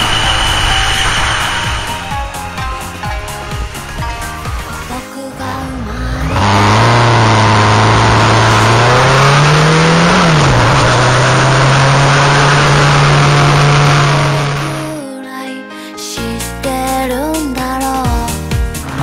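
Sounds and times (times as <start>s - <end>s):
wind and road noise: 0.0s - 5.0s, 5.6s - 15.0s
motorcycle engine revving: 0.0s - 15.0s.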